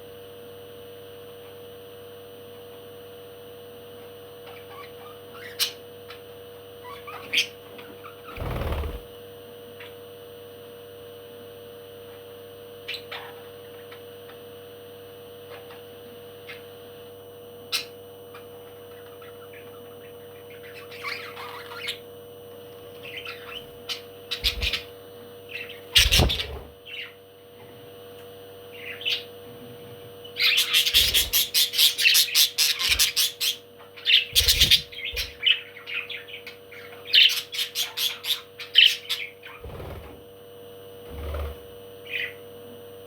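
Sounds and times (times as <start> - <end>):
steady hum: 0.0 - 43.0
parrot squawking and chirping: 4.4 - 6.2, 6.8 - 8.4, 17.7 - 22.1, 22.9 - 24.9, 30.3 - 39.6.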